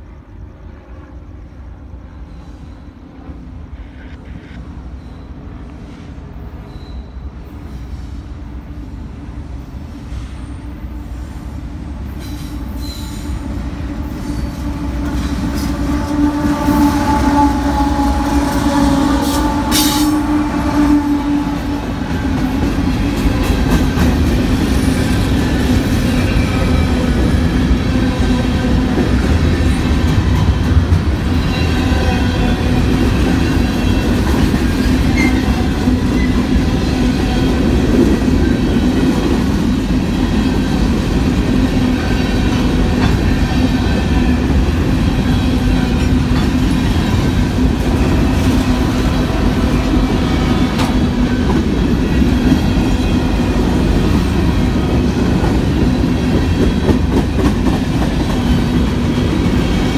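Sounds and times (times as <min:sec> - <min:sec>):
diesel locomotives passing: 0:00.0 - 0:59.9
faint wheel squeal: 0:03.8 - 0:08.2.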